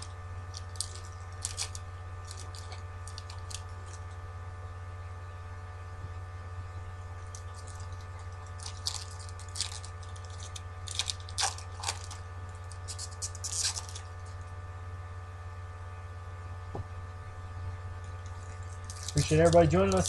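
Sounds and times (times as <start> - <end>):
packaging crinkling: 0.0 - 4.1, 7.3 - 14.4, 18.2 - 20.0
low electrical hum: 0.0 - 20.0.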